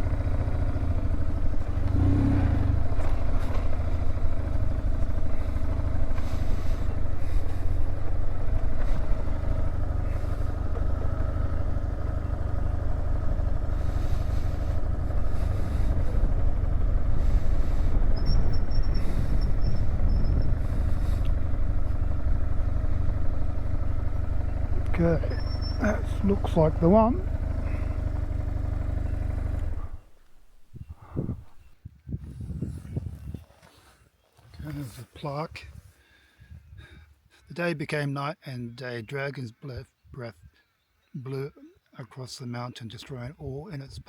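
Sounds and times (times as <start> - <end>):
motorcycle engine running: 0.0 - 33.4.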